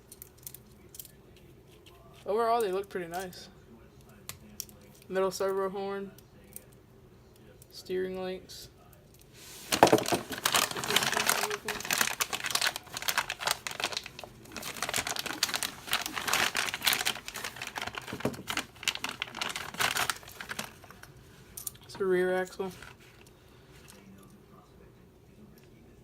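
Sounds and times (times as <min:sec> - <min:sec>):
packaging crinkling: 0:09.6 - 0:21.1, 0:22.6 - 0:23.2.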